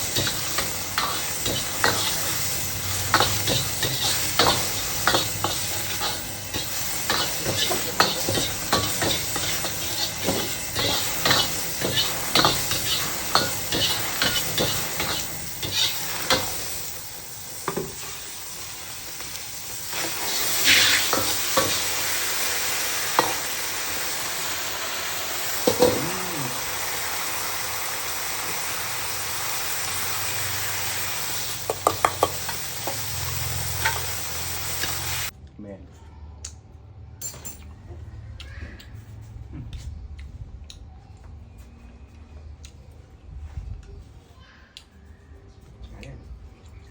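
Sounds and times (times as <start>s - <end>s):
metal spatula scraping a wok: 0.0s - 24.2s
beef sizzling in a wok: 0.0s - 35.3s.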